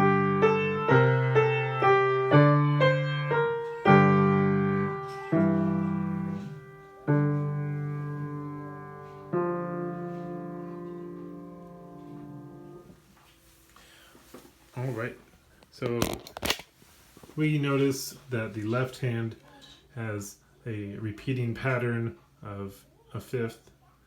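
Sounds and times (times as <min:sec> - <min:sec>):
slow blues piano: 0:00.0 - 0:13.1.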